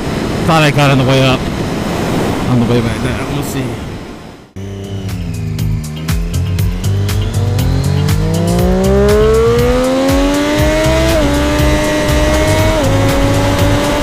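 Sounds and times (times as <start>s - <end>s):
motorcycle engine accelerating: 4.6s - 14.0s.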